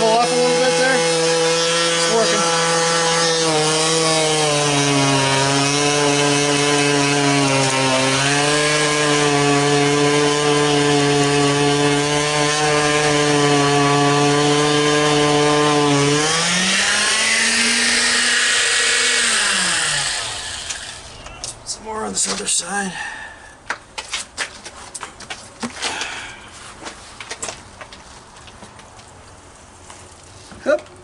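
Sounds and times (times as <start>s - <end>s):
vibrating sander humming: 0.0s - 21.2s.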